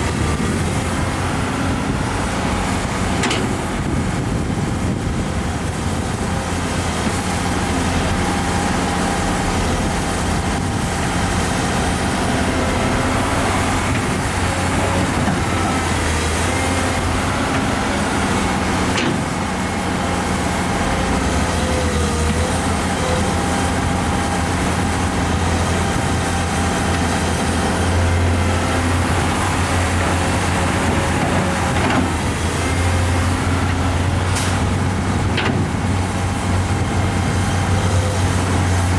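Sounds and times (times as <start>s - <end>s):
construction machinery diesel engine: 0.0s - 38.9s.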